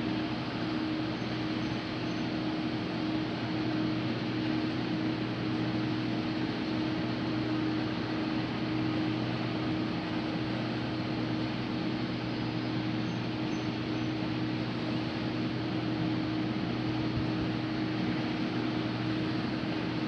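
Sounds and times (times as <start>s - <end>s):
diesel engine drone: 0.0s - 20.0s.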